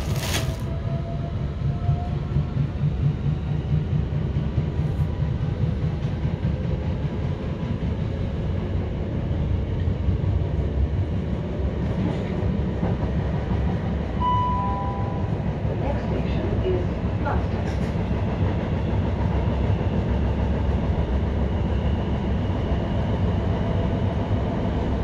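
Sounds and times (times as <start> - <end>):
train wheels rumbling on track: 0.0 - 25.0
short beep: 14.2 - 15.4.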